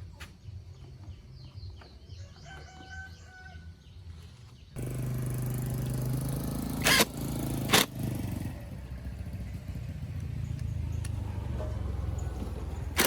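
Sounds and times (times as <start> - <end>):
motorcycle engine idling: 4.8 - 13.0
sharp cracks: 6.5 - 8.5, 12.5 - 13.0.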